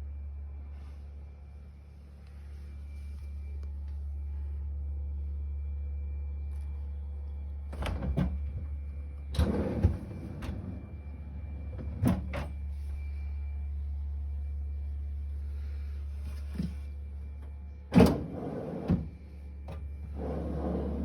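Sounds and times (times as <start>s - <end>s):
low hum: 0.0s - 21.0s
drawer sliding and rattling: 20.1s - 21.0s.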